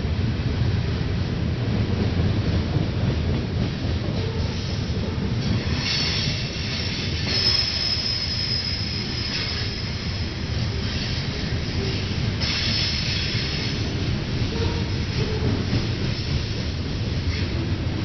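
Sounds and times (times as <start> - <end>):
freight train rumbling past: 0.0 - 18.0
train wheels squealing on rails: 4.1 - 16.6, 17.2 - 17.7.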